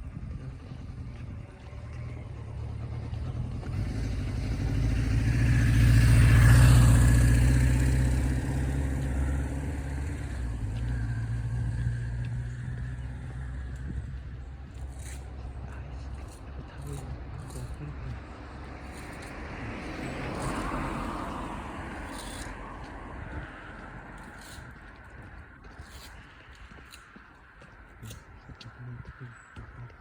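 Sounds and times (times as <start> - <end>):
vehicle engine passing by: 0.0 - 27.2.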